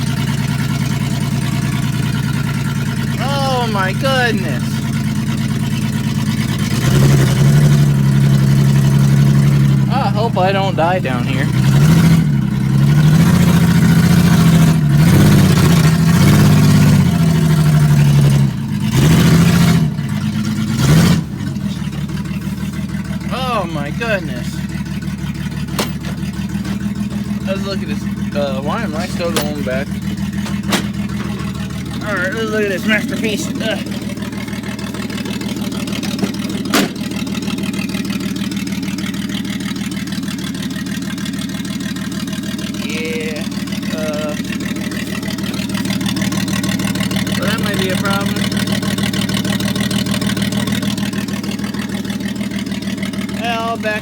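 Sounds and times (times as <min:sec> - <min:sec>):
truck engine revving: 0:00.0 - 0:54.0
loud thump: 0:36.1 - 0:37.1.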